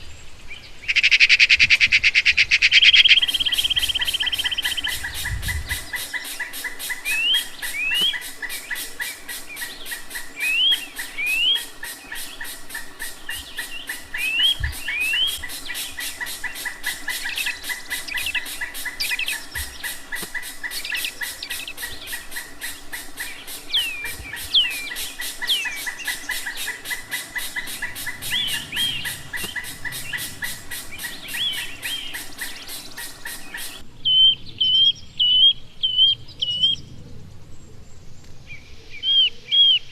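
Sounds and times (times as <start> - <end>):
birds whistling rising notes: 0.8 - 37.0
fast even ticking: 3.0 - 33.8
steady high-pitched tone: 3.4 - 33.8.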